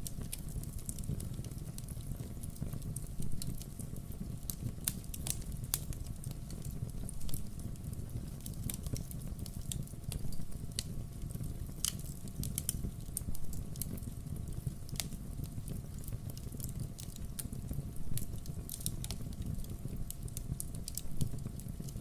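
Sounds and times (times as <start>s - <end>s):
logs crackling and popping: 0.0s - 22.0s
low rumble of flames: 0.0s - 22.0s.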